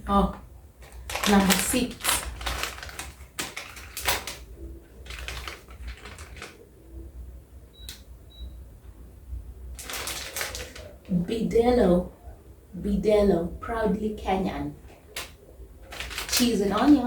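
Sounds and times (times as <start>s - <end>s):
plastic packets crinkling: 0.8s - 6.6s, 9.8s - 11.1s, 15.1s - 17.0s.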